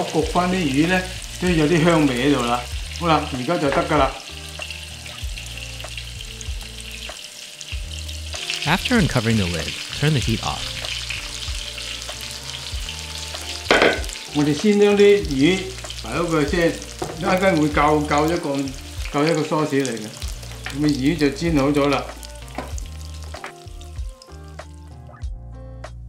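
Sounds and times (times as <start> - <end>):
fish sizzling in hot oil: 0.0 - 25.2
sharp knock: 13.7 - 14.1.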